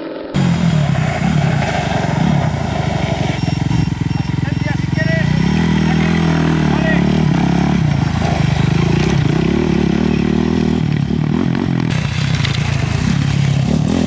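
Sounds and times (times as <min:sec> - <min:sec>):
motorcycle engine idling: 0:00.4 - 0:14.0.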